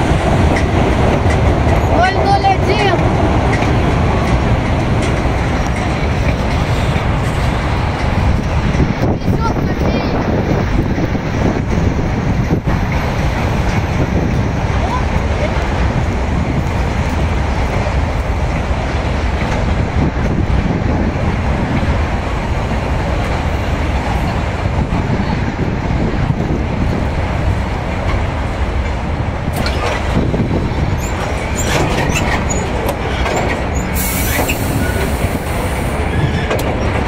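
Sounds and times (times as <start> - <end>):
train cars rumbling: 0.0 - 37.0
clicks and squeaks: 29.6 - 30.2, 31.0 - 35.1.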